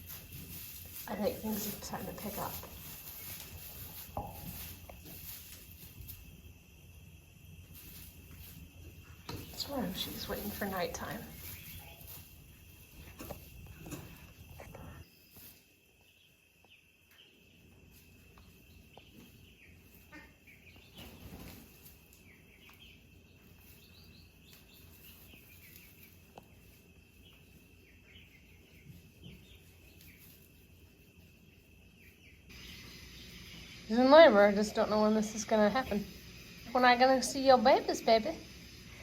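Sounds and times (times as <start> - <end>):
soft rustles: 0.0 - 6.5, 7.7 - 16.0.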